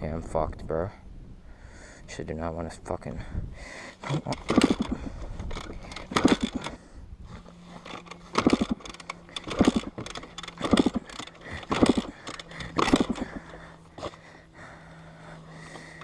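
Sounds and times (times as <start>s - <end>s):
dirt bike kick-start churning: 4.0s - 14.2s.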